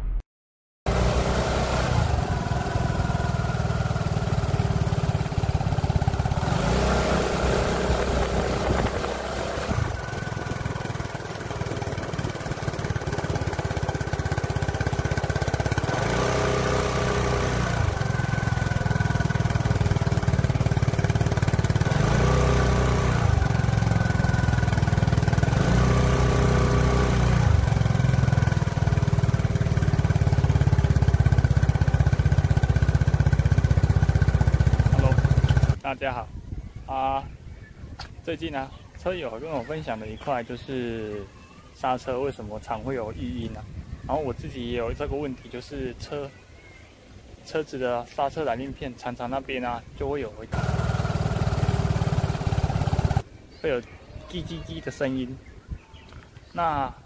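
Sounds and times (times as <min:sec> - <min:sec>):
scooter engine running: 0:00.9 - 0:35.8, 0:50.5 - 0:53.3.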